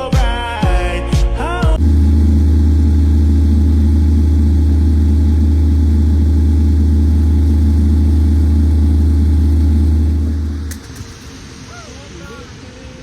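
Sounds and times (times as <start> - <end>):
bus diesel engine idling: 1.8 - 11.2.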